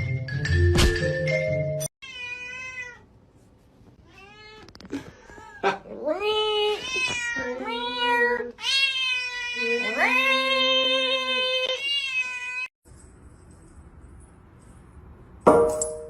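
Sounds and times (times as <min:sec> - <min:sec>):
cat meowing: 0:06.7 - 0:12.7.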